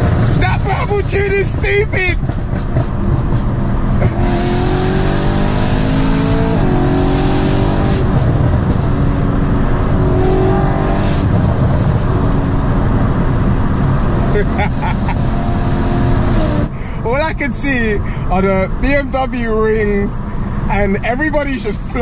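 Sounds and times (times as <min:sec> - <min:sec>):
car engine accelerating: 0:00.0 - 0:17.4.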